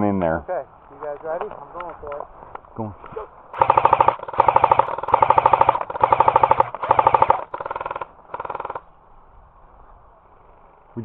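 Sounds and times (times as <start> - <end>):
airsoft gun firing bursts: 3.6 - 8.8.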